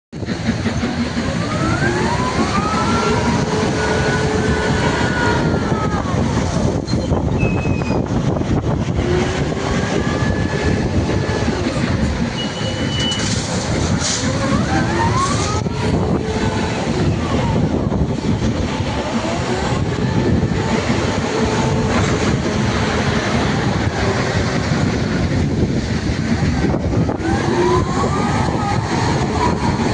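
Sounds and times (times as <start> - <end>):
truck diesel engine revving: 0.2 - 29.9
brief high squeals: 6.8 - 8.1, 12.4 - 13.4.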